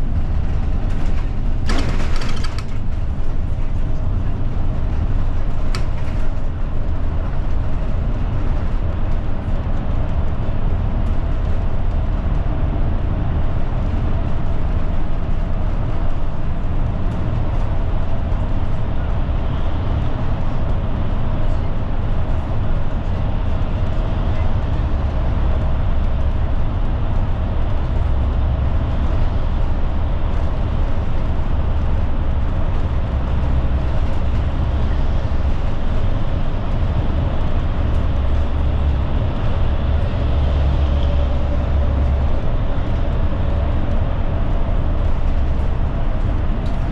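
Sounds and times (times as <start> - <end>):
bus engine and road rumble: 0.0 - 46.9.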